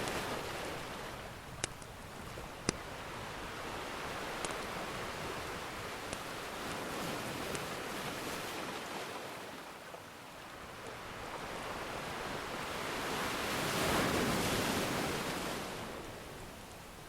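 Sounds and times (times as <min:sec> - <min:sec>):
faint wood fire crackles: 0:00.0 - 0:08.5.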